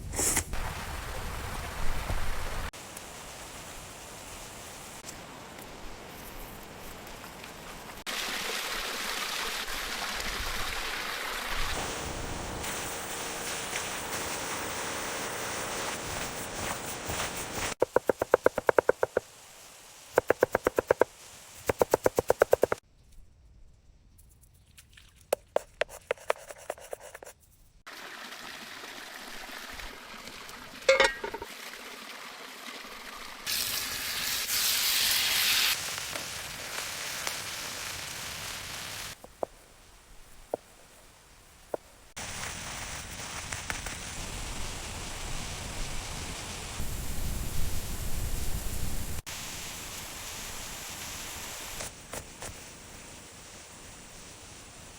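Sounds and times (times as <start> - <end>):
rapid clicking strokes: 20.2 - 22.8.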